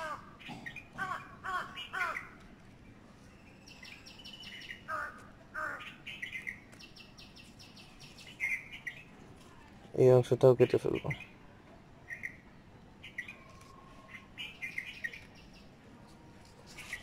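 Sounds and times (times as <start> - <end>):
birds calling: 0.0 - 9.3, 10.0 - 15.8
rapid high bird chirps: 5.7 - 9.1.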